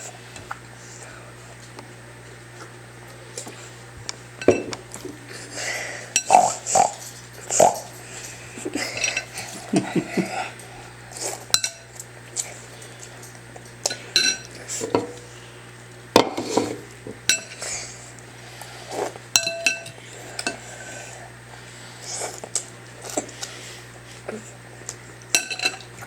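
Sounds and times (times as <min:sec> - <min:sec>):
dishes and cutlery clinking: 0:04.4 - 0:05.0, 0:06.2 - 0:10.4, 0:11.3 - 0:12.0, 0:13.2 - 0:15.4, 0:16.2 - 0:17.8, 0:19.4 - 0:20.7, 0:25.3 - 0:25.9.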